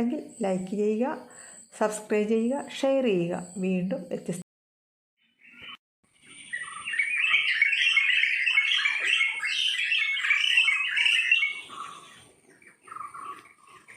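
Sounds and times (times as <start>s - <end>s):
small birds chirping: 5.2s - 13.9s.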